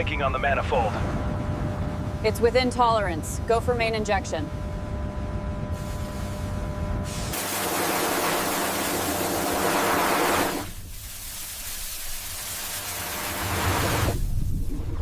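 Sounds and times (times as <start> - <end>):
high-pressure water jet spraying: 7.1 - 14.3.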